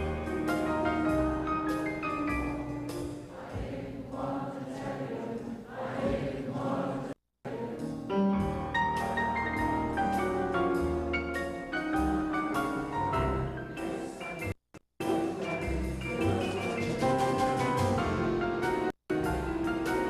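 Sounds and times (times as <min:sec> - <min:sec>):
choir with mallet percussion: 0:02.9 - 0:08.1, 0:11.8 - 0:18.4, 0:19.2 - 0:20.0.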